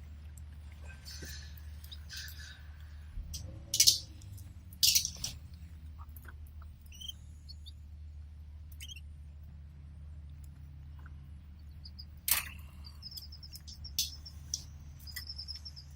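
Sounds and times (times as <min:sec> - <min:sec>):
birds rustling in a cage: 0:00.0 - 0:07.4
steady low hum: 0:00.0 - 0:15.9
canaries chirping: 0:03.8 - 0:04.2, 0:04.8 - 0:05.4, 0:06.8 - 0:07.8, 0:08.8 - 0:09.0, 0:11.6 - 0:15.9.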